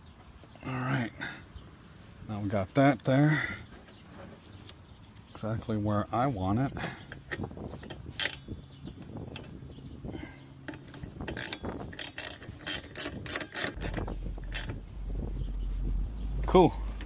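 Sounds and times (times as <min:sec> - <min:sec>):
socket ratchet clicking: 0:10.7 - 0:14.8.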